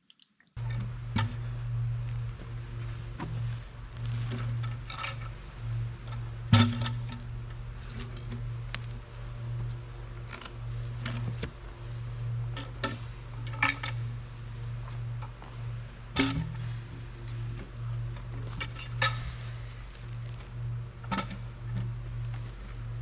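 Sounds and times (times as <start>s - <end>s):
low engine drone: 0.6s - 23.0s
metallic clanks and knocks: 16.1s - 16.7s.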